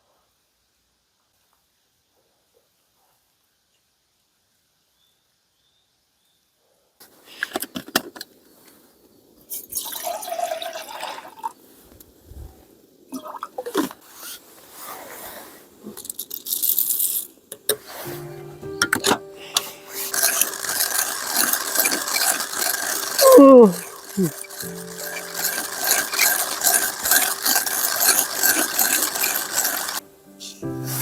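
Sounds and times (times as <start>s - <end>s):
liquid pouring and splashing: 9.6s - 11.5s.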